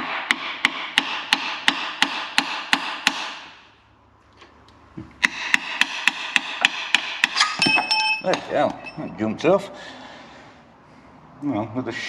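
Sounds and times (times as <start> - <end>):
hammer tapping on metal: 5.2 - 9.0.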